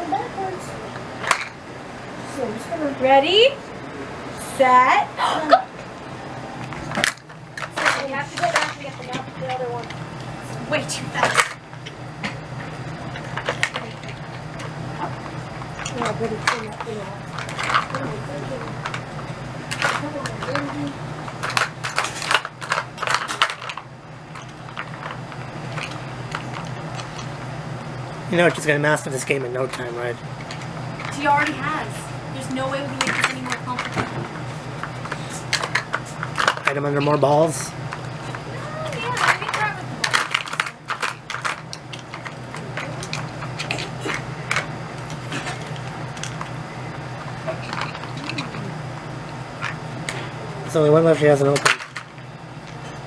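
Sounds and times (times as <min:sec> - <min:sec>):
low hum: 0:00.0 - 0:53.0
hard plastic pieces clicking: 0:38.9 - 0:46.5.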